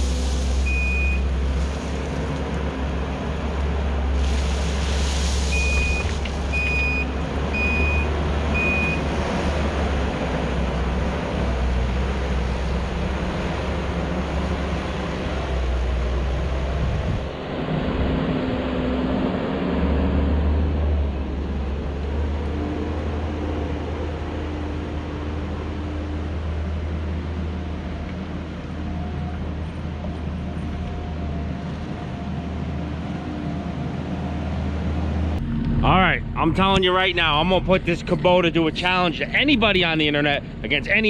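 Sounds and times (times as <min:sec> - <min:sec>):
diesel engine running: 0:00.0 - 0:41.0
backup alarm beeping: 0:00.7 - 0:01.2, 0:05.5 - 0:09.0.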